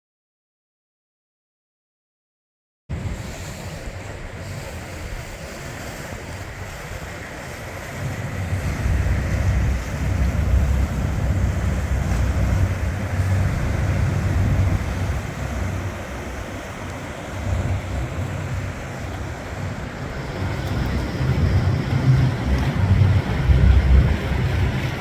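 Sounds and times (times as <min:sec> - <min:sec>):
wind buffeting microphone: 0:02.9 - 0:25.0.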